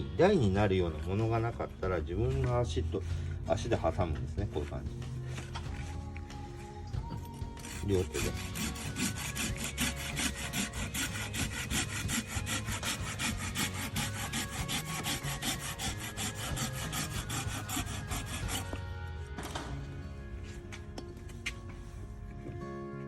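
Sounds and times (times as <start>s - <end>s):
hand saw cutting log: 7.2s - 19.7s.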